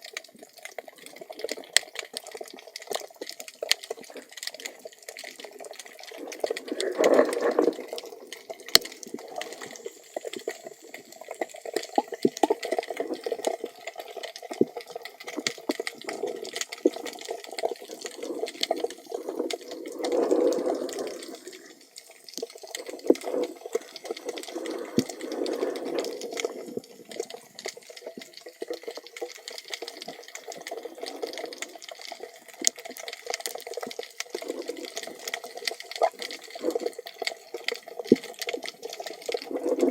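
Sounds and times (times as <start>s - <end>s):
underwater water rush: 0.0s - 39.9s.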